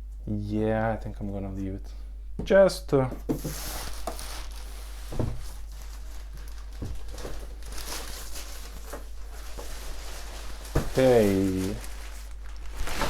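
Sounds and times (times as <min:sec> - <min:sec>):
steady low hum: 0:00.0 - 0:13.0
packaging and plastic rustling: 0:03.3 - 0:13.0.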